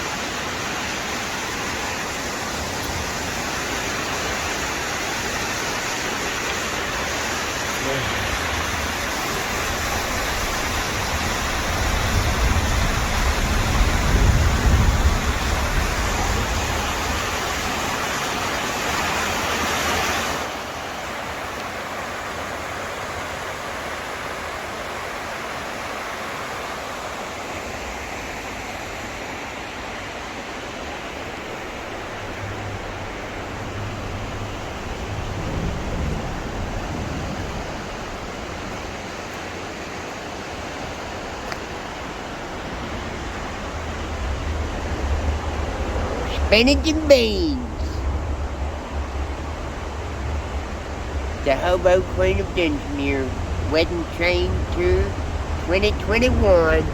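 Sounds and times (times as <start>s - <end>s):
rushing wind: 0.0s - 56.9s
low rumble of moving train: 7.0s - 18.8s, 27.9s - 56.9s.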